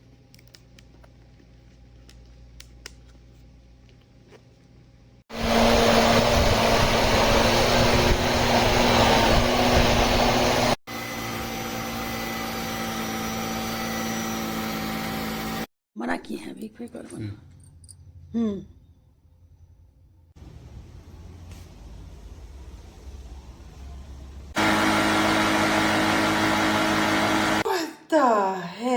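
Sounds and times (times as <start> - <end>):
vacuum motor running: 5.3 - 15.7, 24.3 - 27.7.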